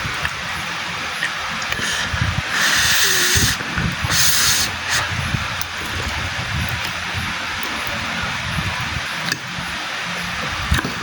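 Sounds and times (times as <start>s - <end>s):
hissing draws of air through mouth: 1.6s - 5.4s.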